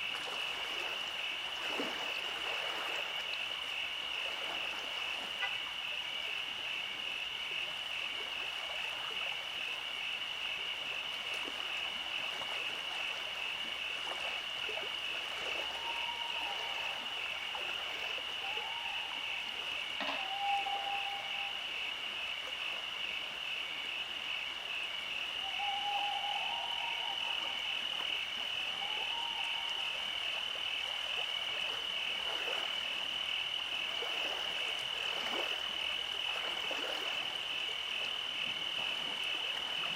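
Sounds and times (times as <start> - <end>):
frogs trilling: 0.0 - 39.9
low frog calls: 14.6 - 32.4.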